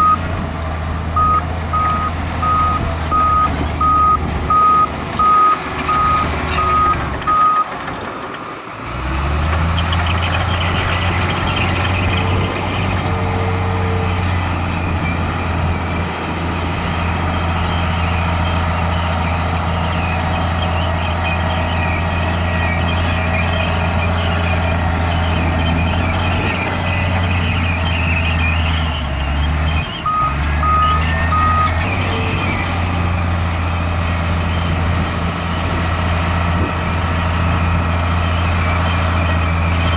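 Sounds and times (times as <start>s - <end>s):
reversing alarm beeping: 0.0s - 0.2s, 1.2s - 7.7s, 30.0s - 32.4s
heavy diesel machinery running: 0.0s - 39.9s
faint high squeals: 19.2s - 32.9s.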